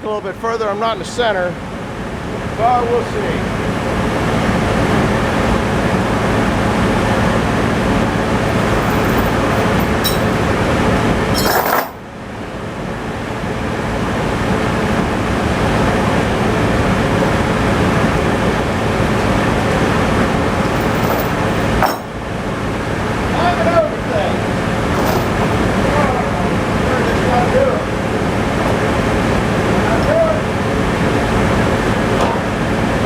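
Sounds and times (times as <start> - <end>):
tractor engine running: 4.0 - 11.6, 13.8 - 33.0
metal clinks and clanks: 8.4 - 10.5, 11.3 - 12.0, 20.6 - 22.1, 24.9 - 25.6.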